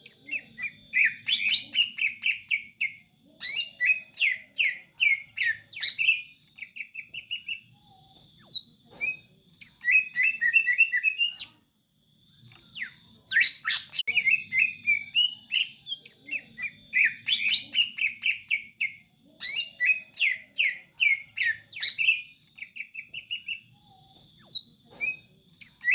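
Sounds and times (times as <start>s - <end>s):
bird singing chirps and whistles: 0.0s - 11.5s, 12.2s - 25.9s.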